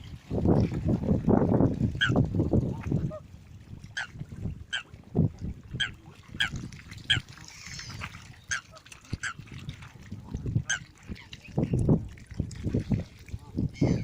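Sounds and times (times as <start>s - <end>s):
waterbirds calling: 1.6s - 14.0s.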